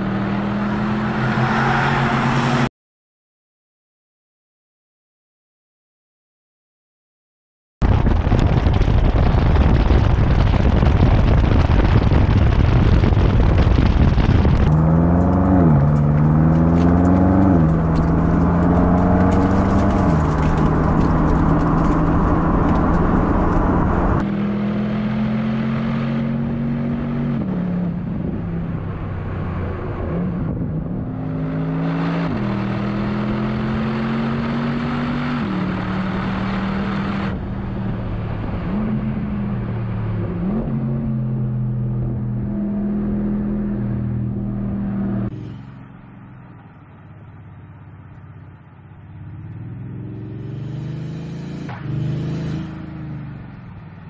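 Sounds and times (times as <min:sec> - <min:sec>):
car engine accelerating hard: 0:00.0 - 0:02.7, 0:08.2 - 0:45.8, 0:49.4 - 0:53.5
wind and tyre rush: 0:00.0 - 0:02.7, 0:07.8 - 0:45.4.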